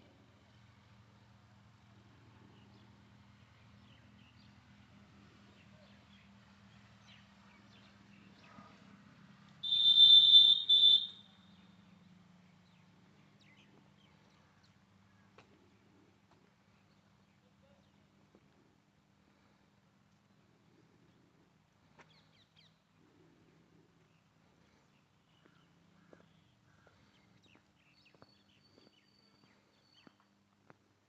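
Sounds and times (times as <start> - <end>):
peacock shrill call: 9.6 - 11.6.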